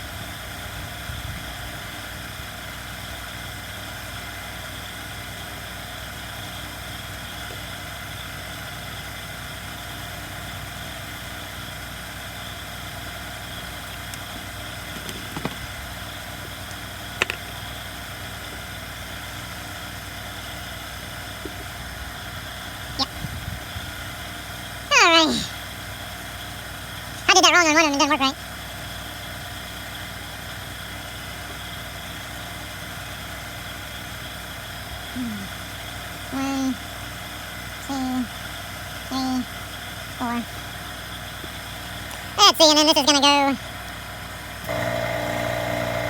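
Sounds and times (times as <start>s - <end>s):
background hum and hiss: 0.0s - 46.0s
small parts clicking: 17.2s - 17.6s.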